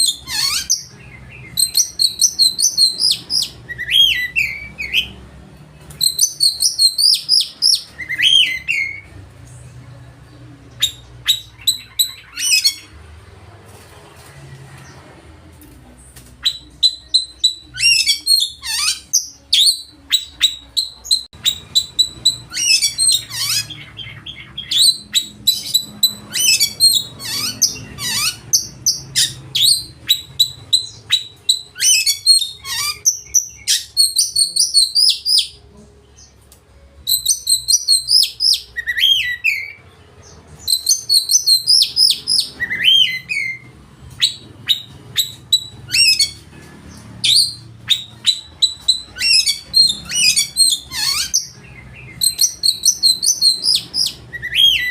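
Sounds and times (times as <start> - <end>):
bird singing loudly: 16.4 - 35.6, 40.6 - 43.6, 47.2 - 54.9.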